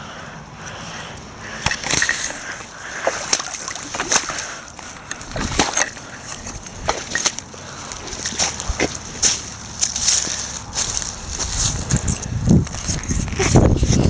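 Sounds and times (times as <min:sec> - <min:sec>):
footsteps splashing in water: 0:01.7 - 0:12.1.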